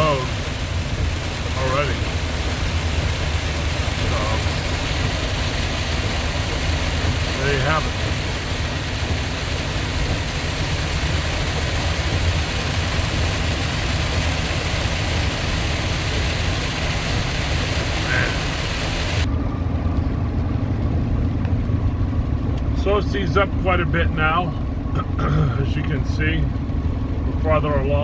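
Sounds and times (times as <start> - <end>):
heavy rain drumming on a car: 0.0 - 19.3
tyre and engine rumble: 0.0 - 28.0.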